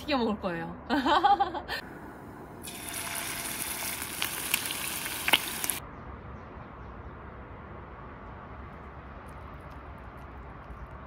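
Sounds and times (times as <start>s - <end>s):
chicken sizzling in hot oil: 2.6s - 5.8s
oil popping: 2.6s - 5.8s.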